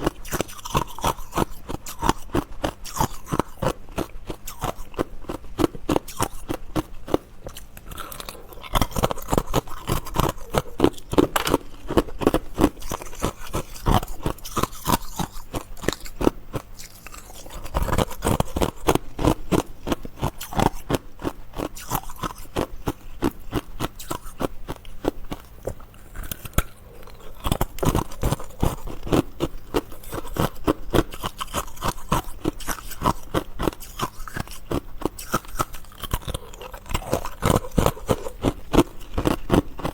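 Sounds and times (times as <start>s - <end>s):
ice crunching while chewing: 0.0s - 39.9s.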